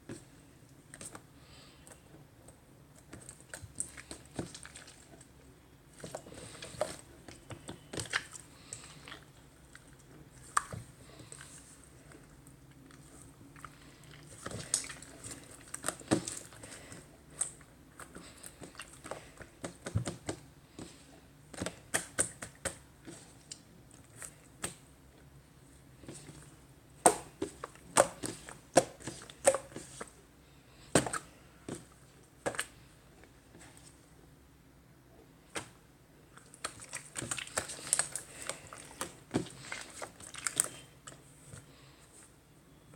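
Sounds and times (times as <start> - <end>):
slime squishing and popping: 27.0 - 29.9.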